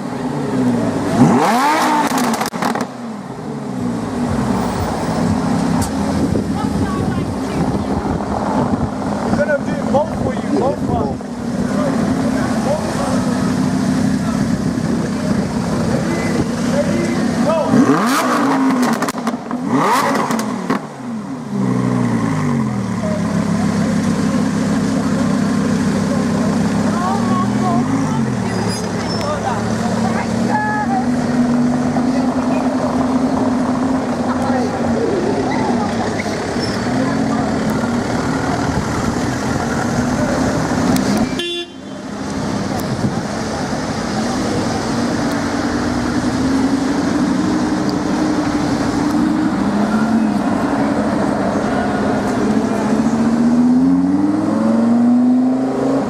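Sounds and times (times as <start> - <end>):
car engine revving: 0.0 - 56.0
exhaust pops and crackles: 1.8 - 3.0, 14.3 - 20.9
car engine idling: 2.2 - 18.2, 18.8 - 53.5.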